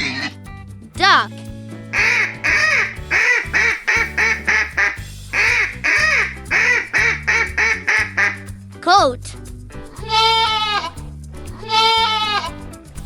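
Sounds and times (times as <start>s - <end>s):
duck quacking: 2.0s - 8.5s.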